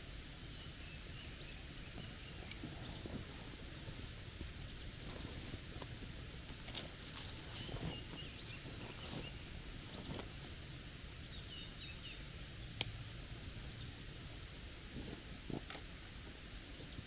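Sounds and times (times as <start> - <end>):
low outdoor background: 0.0 - 17.0
small birds chirping: 0.4 - 12.7, 16.8 - 17.0.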